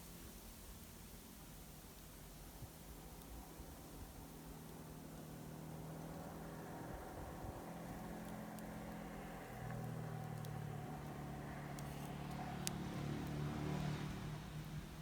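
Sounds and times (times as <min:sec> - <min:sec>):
burning wood crackling: 0:01.8 - 0:15.0
vehicle engine humming: 0:05.7 - 0:15.0.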